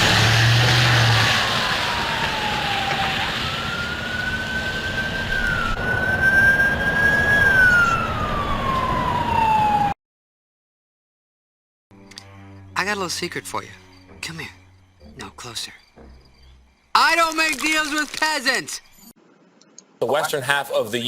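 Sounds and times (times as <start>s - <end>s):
siren wailing: 0.0s - 10.0s.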